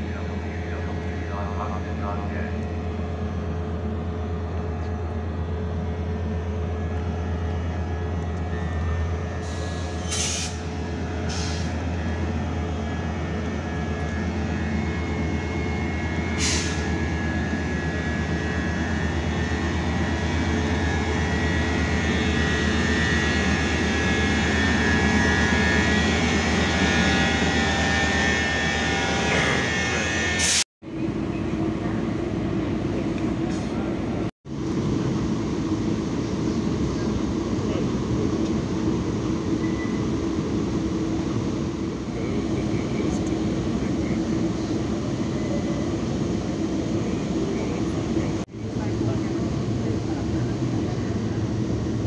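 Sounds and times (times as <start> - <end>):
diesel locomotive droning: 0.0 - 52.0
short air hisses: 9.4 - 10.7, 11.3 - 11.7, 16.4 - 16.8.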